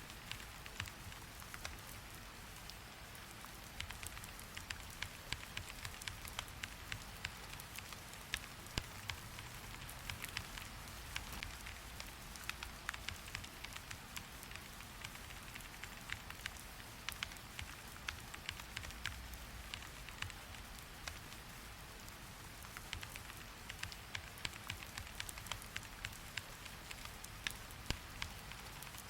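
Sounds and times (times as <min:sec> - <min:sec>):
rain hiss: 0:00.0 - 0:29.0.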